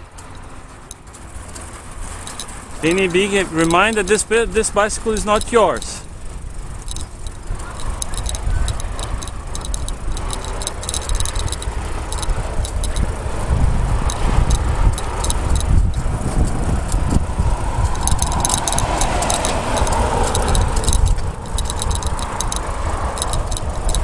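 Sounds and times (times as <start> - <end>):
bicycle rattling clicks: 0.0 - 24.0
road traffic noise: 0.0 - 24.0
wind rushing over microphone: 1.4 - 24.0.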